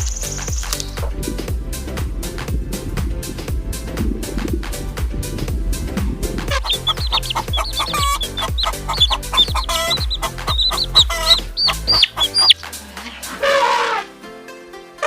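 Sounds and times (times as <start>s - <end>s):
chickens peeping and clucking: 6.5s - 12.6s
electronic dance music: 6.5s - 12.6s.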